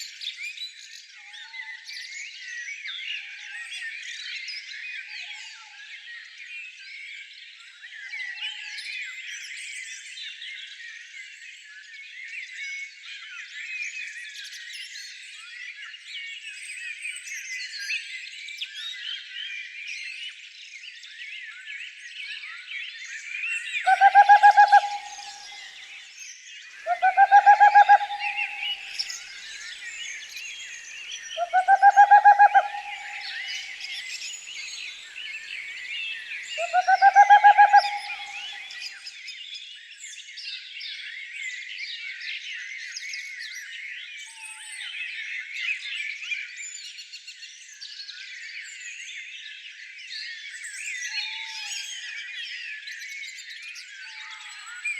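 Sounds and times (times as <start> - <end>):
harsh low bird calls: 23.9 - 25.8, 26.8 - 38.9
songbirds chirping: 23.9 - 25.9, 26.8 - 38.9.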